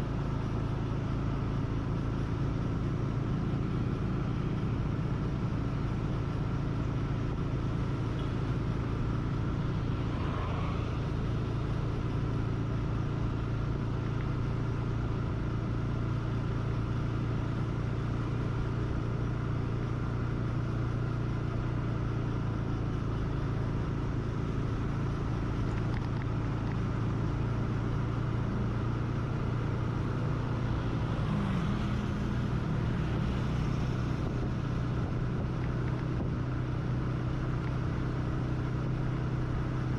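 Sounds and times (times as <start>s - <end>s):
road and wind noise: 0.0s - 39.9s
vehicle engine humming: 0.0s - 39.9s.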